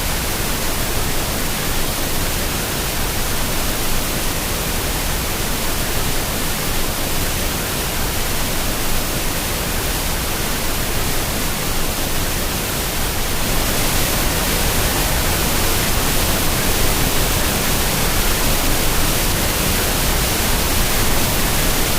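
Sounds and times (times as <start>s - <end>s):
waterfall rushing: 12.4s - 21.9s.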